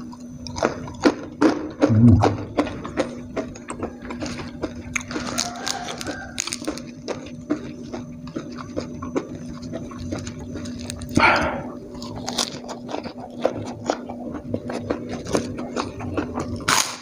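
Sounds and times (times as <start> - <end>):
steady low hum: 0.0 - 5.2, 6.4 - 16.8
chewing and lip-smacking: 0.0 - 17.0
wet mouth clicks: 1.8 - 3.0.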